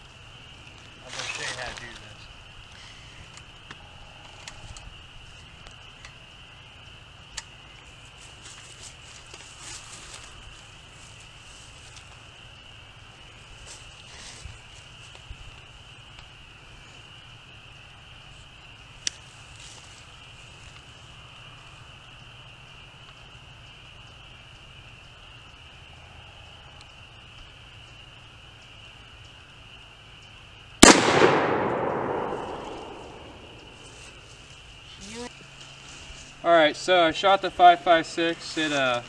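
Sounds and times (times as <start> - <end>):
rifle shot with echo: 30.8 - 34.0.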